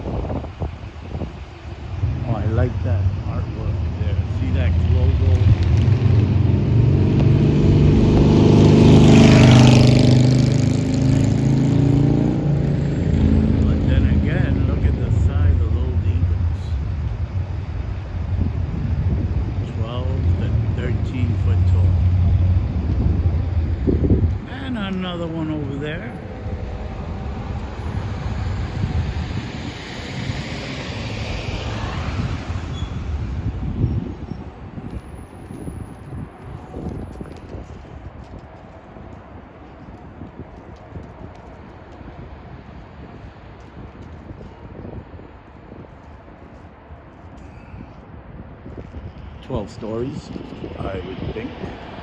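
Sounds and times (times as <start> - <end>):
traffic: 0.0 - 52.0
wind rumbling on microphone: 0.0 - 52.0
vehicle engine driving past: 1.9 - 36.0.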